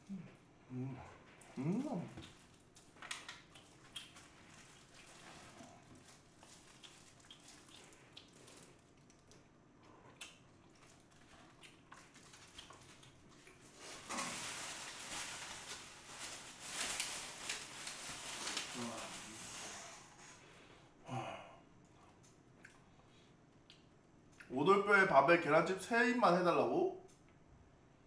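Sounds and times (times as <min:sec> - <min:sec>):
person chewing food: 0:00.0 - 0:14.0, 0:21.8 - 0:24.5
rustling noise: 0:13.6 - 0:20.5.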